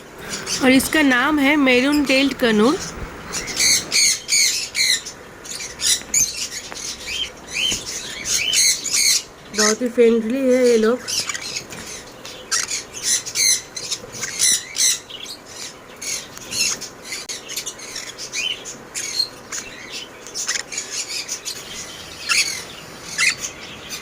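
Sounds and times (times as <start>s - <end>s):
parrots squawking and chirping: 0.0s - 9.2s.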